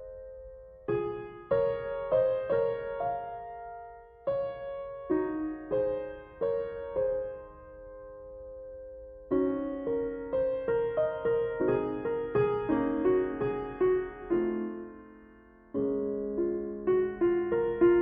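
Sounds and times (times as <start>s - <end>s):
soft piano chords: 0.0s - 18.0s.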